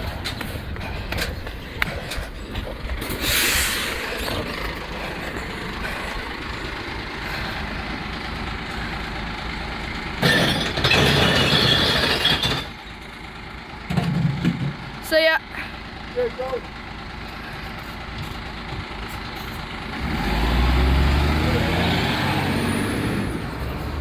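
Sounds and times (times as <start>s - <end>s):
truck engine running: 0.0s - 24.0s
crashing rush of glass: 10.2s - 12.8s.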